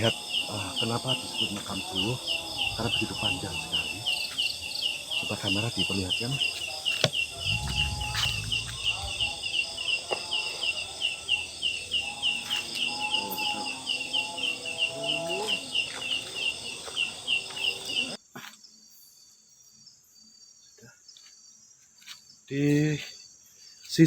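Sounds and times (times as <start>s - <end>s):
high insect hiss: 0.0s - 24.0s
insect chirping: 0.0s - 24.0s
low rumble: 2.6s - 4.0s, 7.3s - 9.7s.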